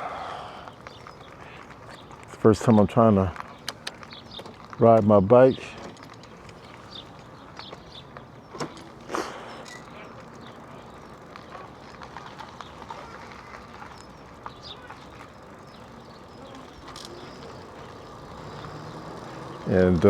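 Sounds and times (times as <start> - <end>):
bird chirps: 13.6 - 20.0.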